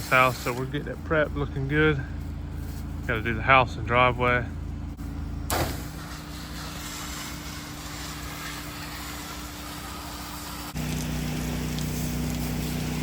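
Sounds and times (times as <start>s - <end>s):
water spraying hiss: 0.0s - 1.0s, 5.5s - 13.0s
pressure washer engine running: 0.0s - 13.0s.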